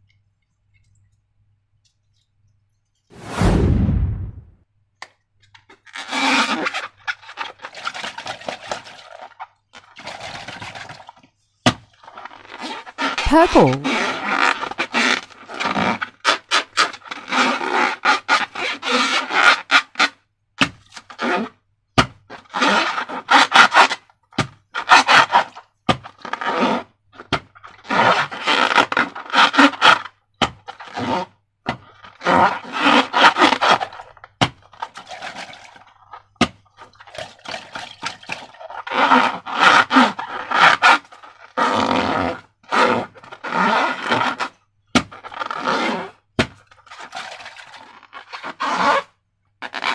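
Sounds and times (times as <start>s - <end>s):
wet slime squelches: 13.2s - 14.0s.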